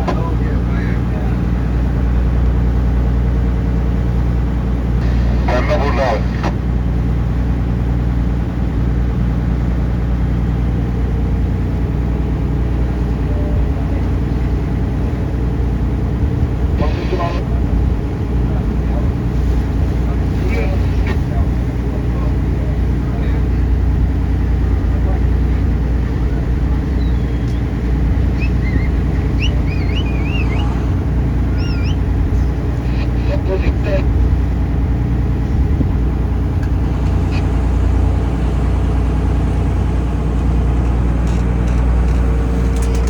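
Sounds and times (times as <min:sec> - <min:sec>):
boat engine droning: 0:00.0 - 0:43.0
wind and water noise: 0:00.0 - 0:43.0
high warbling whistles: 0:26.9 - 0:32.2.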